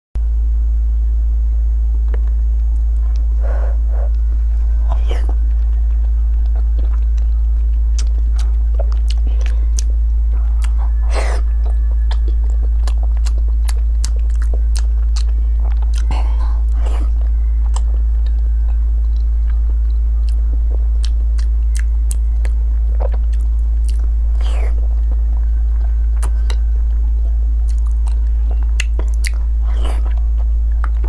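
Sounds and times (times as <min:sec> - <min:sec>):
steady low hum: 0:00.2 - 0:31.0
mouth smacking: 0:04.8 - 0:20.4, 0:21.0 - 0:26.6, 0:27.6 - 0:31.0
chewing with wet clicks: 0:04.9 - 0:31.0.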